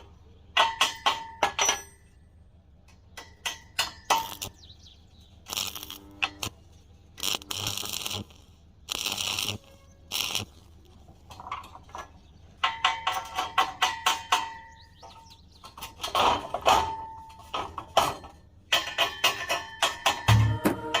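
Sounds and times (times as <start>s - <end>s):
hammer striking steel: 0.5s - 2.2s, 3.2s - 4.6s, 12.6s - 15.2s, 16.0s - 21.0s.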